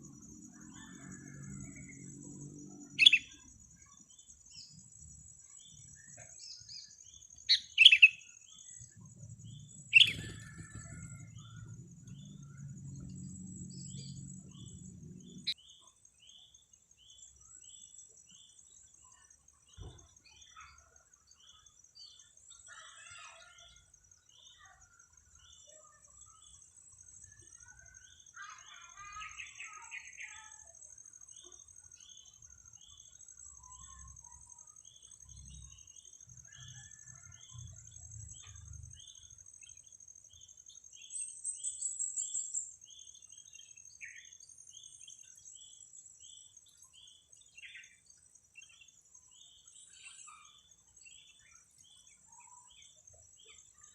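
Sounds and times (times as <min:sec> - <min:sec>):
bird trill: 0:00.0 - 0:26.6, 0:27.2 - 0:39.9.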